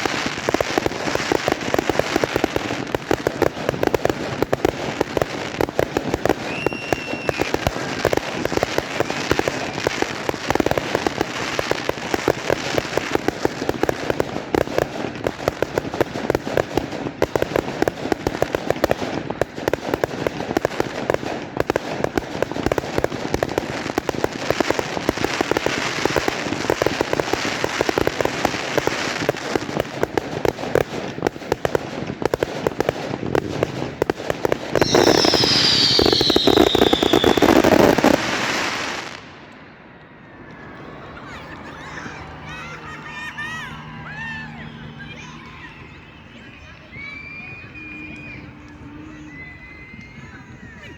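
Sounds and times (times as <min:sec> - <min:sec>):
fireworks crackling bangs: 0:00.0 - 0:50.9
high firework whistle: 0:06.2 - 0:13.5, 0:33.5 - 0:50.9.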